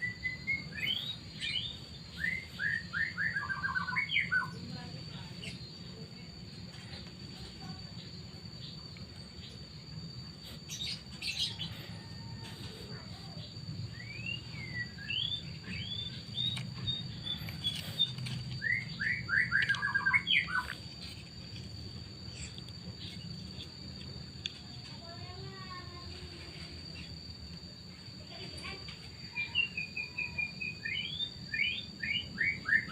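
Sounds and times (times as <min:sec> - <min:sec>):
birds chirping: 0:00.0 - 0:21.2.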